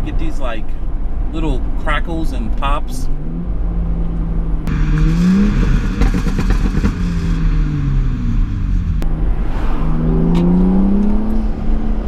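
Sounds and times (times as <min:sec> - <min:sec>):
car engine revving: 0:03.1 - 0:12.0.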